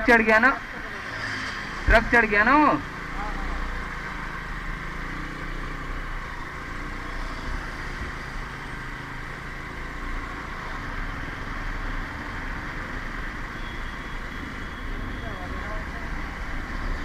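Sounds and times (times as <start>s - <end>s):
road and traffic noise: 0.0s - 17.0s.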